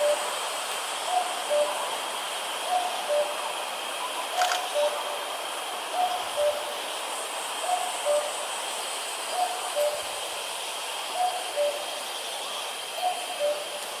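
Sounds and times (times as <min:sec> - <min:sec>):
steady high hiss: 0:00.0 - 0:14.0
distant cuckoo calling: 0:02.6 - 0:03.4, 0:04.0 - 0:05.2, 0:05.9 - 0:06.8, 0:07.6 - 0:08.4, 0:11.1 - 0:14.0.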